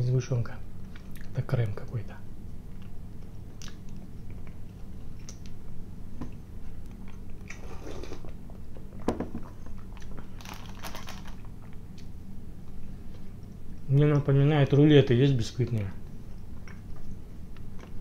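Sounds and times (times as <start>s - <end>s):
man chewing pastry: 2.5s - 13.9s, 16.0s - 18.0s
foil wrapping rustling: 10.3s - 11.5s.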